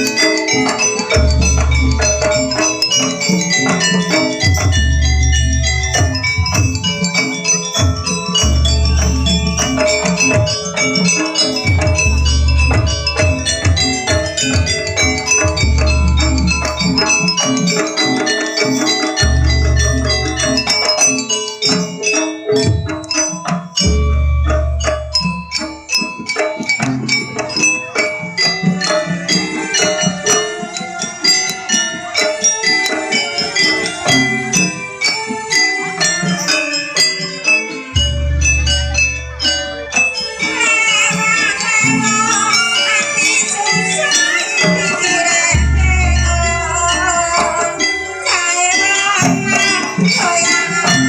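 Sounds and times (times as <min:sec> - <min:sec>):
drumming: 0:00.0 - 0:51.0
gamelan metal percussion: 0:00.0 - 0:51.0
metallophones ringing: 0:00.0 - 0:51.0.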